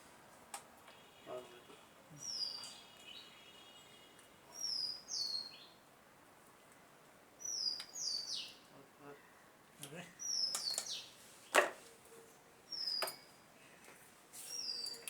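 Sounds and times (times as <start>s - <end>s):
bird whistling calls: 4.5s - 5.7s.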